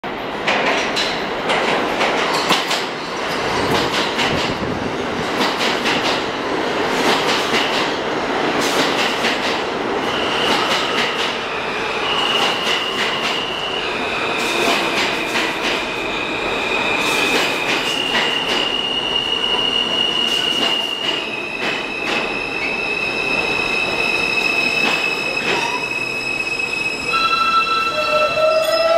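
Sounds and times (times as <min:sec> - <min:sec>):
train wheels clacking over rail joints: 0:00.4 - 0:04.7
high-pitched wheel squeal: 0:22.5 - 0:28.9.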